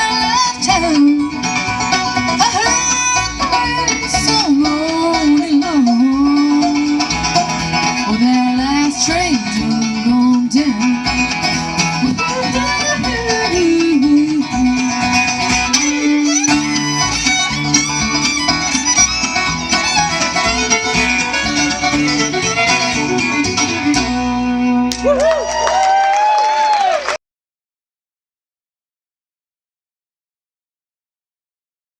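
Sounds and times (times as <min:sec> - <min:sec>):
banjo: 0:00.0 - 0:25.4
fiddle lead: 0:00.0 - 0:26.0
guitar: 0:00.0 - 0:26.2.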